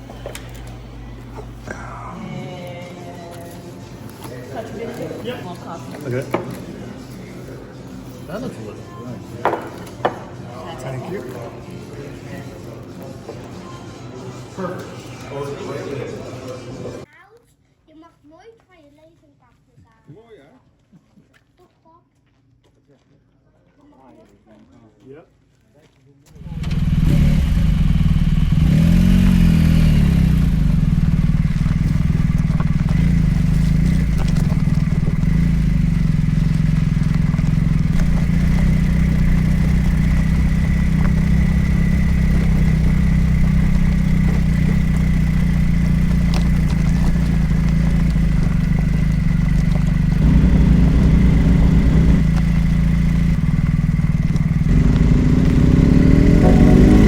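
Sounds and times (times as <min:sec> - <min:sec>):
motorcycle engine running: 0:00.0 - 0:02.5, 0:26.3 - 0:57.0.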